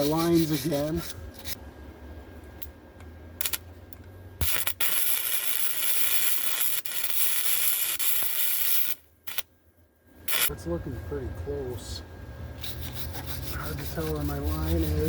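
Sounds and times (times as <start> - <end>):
welder sizzling hiss: 4.4 - 9.4, 10.3 - 10.5.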